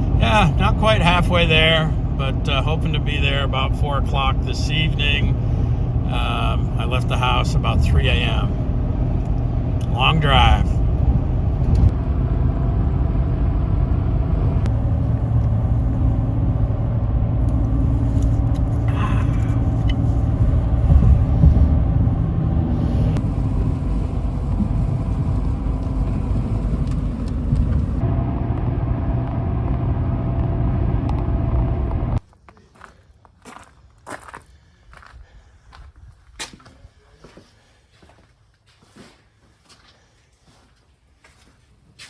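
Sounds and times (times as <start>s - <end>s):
car engine and tyre rumble: 0.0s - 32.4s.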